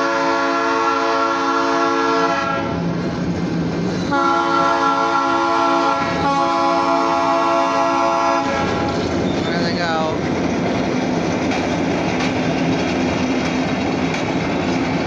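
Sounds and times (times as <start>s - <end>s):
locomotive air horn blasts: 0.0s - 2.8s, 4.1s - 8.9s
train rumbling: 0.0s - 15.0s.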